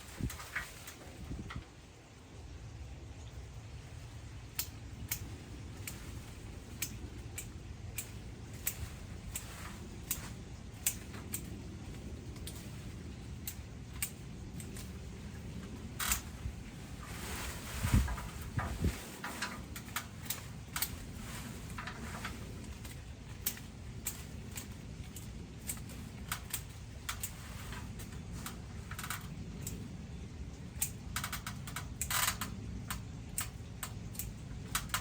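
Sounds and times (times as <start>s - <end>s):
low steady rumble: 0.0s - 35.0s
pruning shears snipping: 4.5s - 29.8s.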